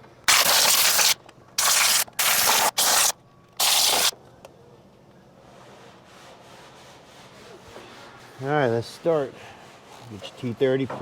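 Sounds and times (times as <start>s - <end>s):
compressed air blow gun blasts: 0.0s - 4.1s.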